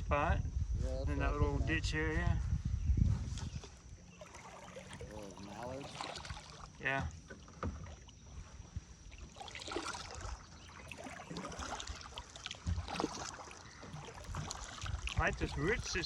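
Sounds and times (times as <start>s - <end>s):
paddle splashing in water: 3.4s - 16.0s.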